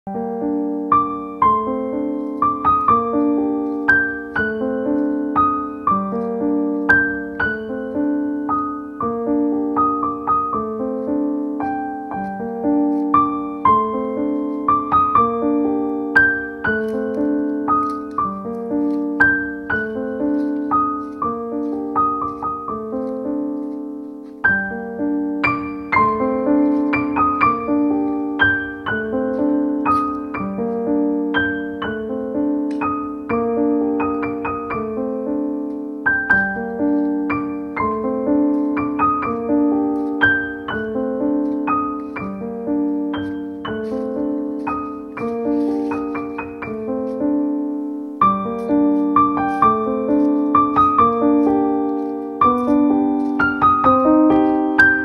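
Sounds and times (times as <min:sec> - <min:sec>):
gentle piano music: 0:00.1 - 0:55.0.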